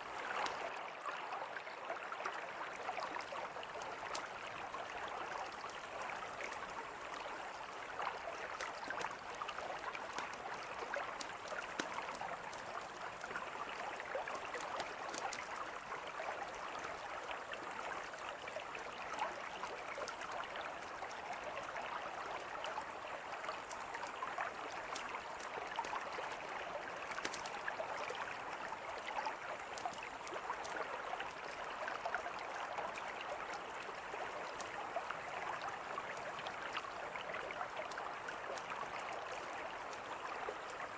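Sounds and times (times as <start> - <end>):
river flowing: 0.0 - 40.9
campfire crackling: 8.4 - 15.9, 26.9 - 27.8, 29.6 - 30.6.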